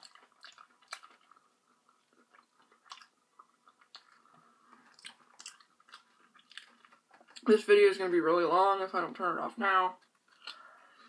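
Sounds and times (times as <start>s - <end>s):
person chewing fried food: 0.0s - 7.5s, 10.0s - 11.0s.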